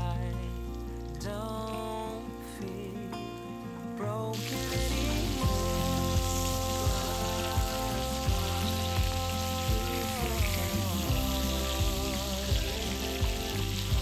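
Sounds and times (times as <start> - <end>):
food sizzling in a pan: 0.0 - 14.0
music with steady beat: 4.4 - 14.0.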